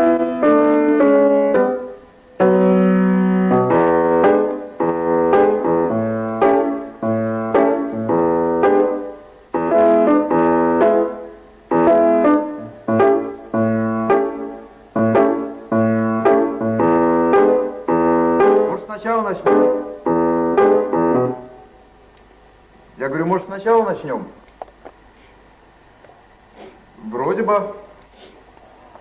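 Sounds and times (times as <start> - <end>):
piano chords: 0.0 - 21.9.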